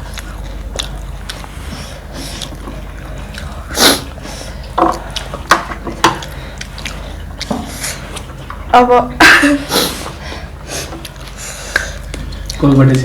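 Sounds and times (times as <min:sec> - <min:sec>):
chewing clicks: 0:00.0 - 0:01.5, 0:04.9 - 0:08.6, 0:11.0 - 0:12.7.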